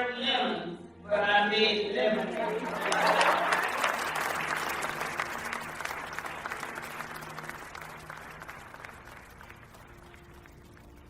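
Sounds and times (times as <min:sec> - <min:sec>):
small crowd applauding: 0:02.2 - 0:11.0.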